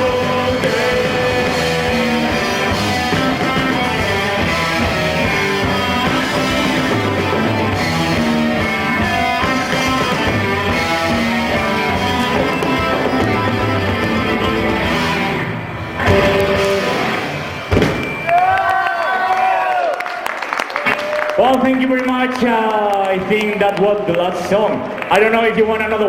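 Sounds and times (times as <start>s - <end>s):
live rock band playing: 0.0s - 18.4s
electric guitar lead: 0.0s - 18.7s.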